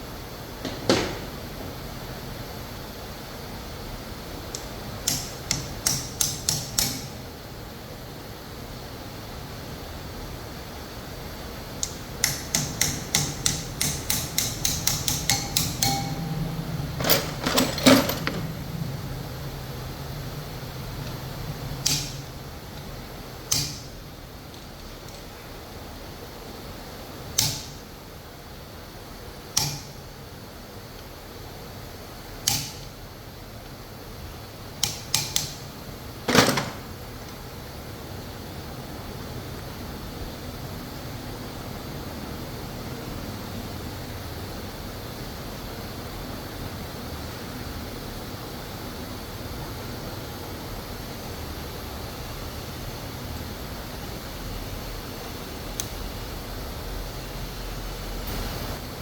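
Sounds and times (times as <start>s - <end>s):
low machine hum: 0.0s - 45.7s
hand tools clicking: 11.8s - 16.3s
parts clattering: 14.7s - 18.7s, 36.3s - 37.4s.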